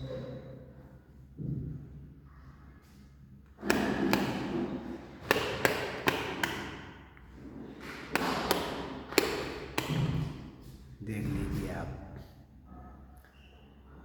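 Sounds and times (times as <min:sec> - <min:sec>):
sharp taps and knocks: 0:03.6 - 0:06.9, 0:07.8 - 0:10.5.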